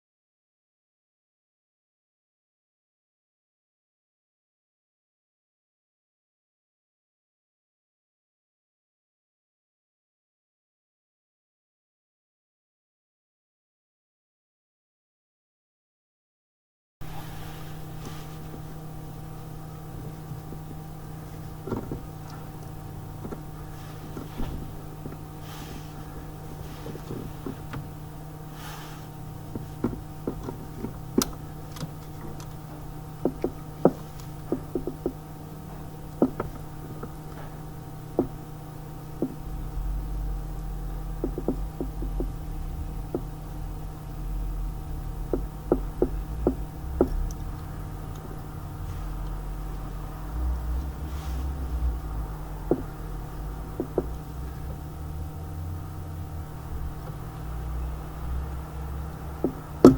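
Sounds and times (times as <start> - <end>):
low rumble: 17.0 - 59.9
steady hum: 17.0 - 59.9
hand tools clicking and knocking: 33.2 - 35.2.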